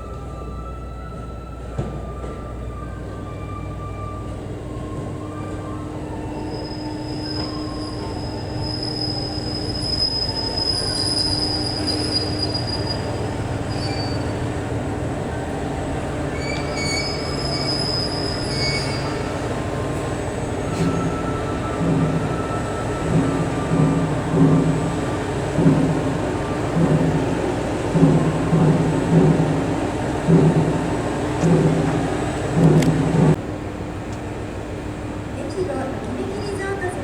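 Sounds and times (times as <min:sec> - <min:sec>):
train wheels squealing: 0:03.6 - 0:14.7, 0:16.2 - 0:33.2, 0:36.3 - 0:36.9
diesel engine running: 0:11.8 - 0:37.0.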